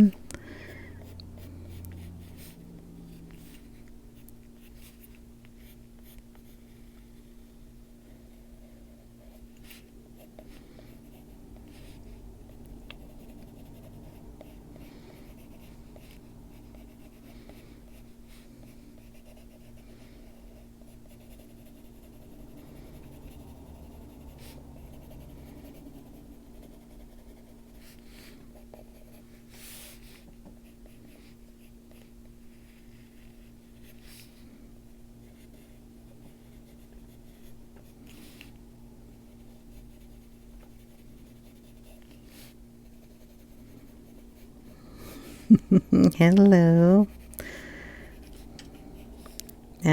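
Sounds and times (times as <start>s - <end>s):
pencil scratching on paper: 8.3s - 34.4s, 39.2s - 44.5s.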